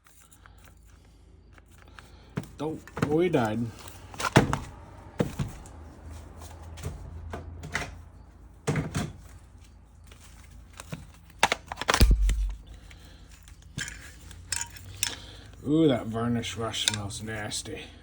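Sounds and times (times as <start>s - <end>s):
steady low hum: 11.9s - 13.7s
heavy thud: 12.0s - 12.8s
tools clicking and knocking: 13.5s - 15.6s, 16.7s - 17.2s.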